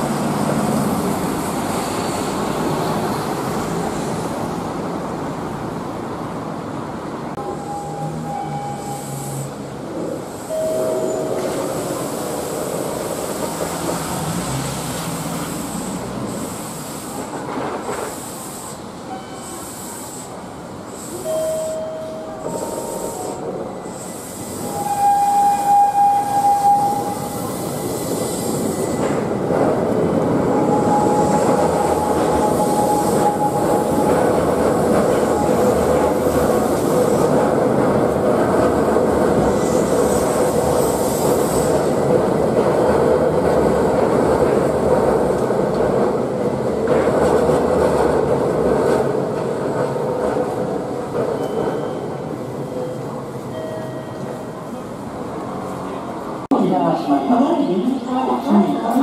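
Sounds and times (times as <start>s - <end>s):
train wheels and motors rumbling: 7.3s - 53.3s.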